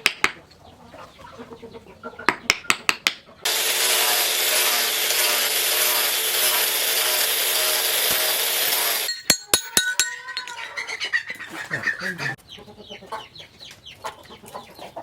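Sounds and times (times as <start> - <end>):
power tool cutting steel: 3.4 - 10.5
ringing metal strikes: 9.0 - 10.7.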